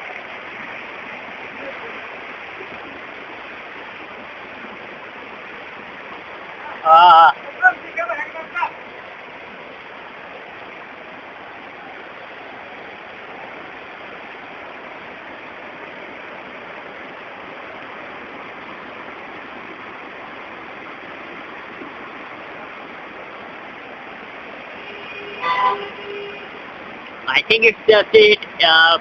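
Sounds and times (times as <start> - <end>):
heavy rain downpour: 0.0 - 29.0.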